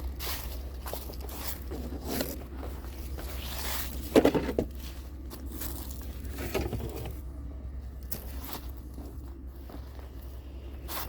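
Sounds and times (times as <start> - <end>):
objects rustling and scraping: 0.0 - 7.4
steady low hum: 0.0 - 11.0.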